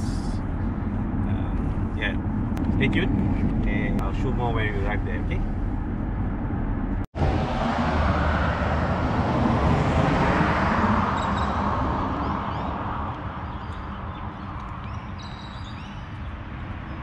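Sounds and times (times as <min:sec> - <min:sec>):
car road noise: 0:00.0 - 0:17.0.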